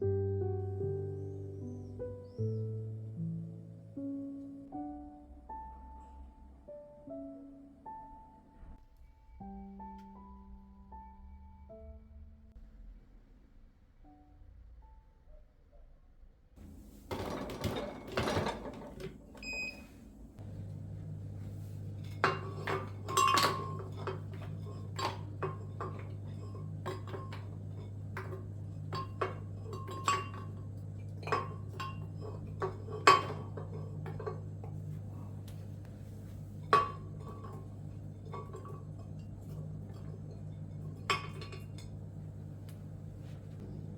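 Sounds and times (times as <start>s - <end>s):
dishes and cutlery clinking: 17.1s - 19.9s, 21.4s - 42.3s.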